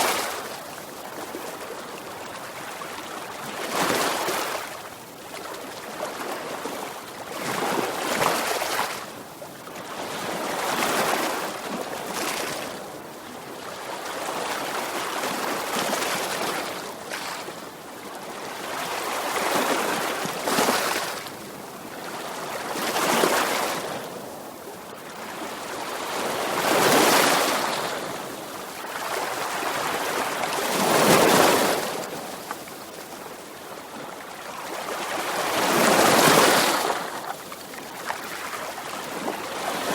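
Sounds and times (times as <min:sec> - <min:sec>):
sea waves breaking on shore: 0:14.0 - 0:39.9.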